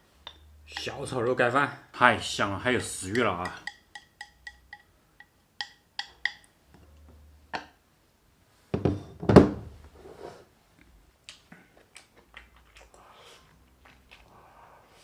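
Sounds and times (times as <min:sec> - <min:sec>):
light taps and clicks of tableware: 0:03.4 - 0:06.5
tableware thunk: 0:08.7 - 0:09.7.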